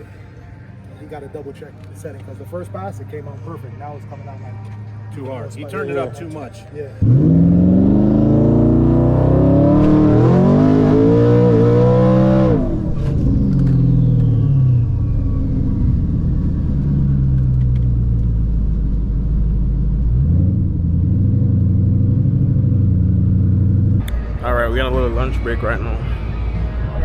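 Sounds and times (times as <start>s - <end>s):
high turbo whine: 7.0s - 27.0s
truck engine at full throttle: 7.0s - 27.0s.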